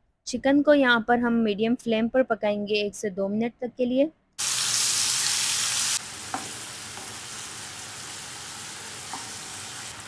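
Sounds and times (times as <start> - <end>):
chicken sizzling in hot oil: 4.4 - 10.0.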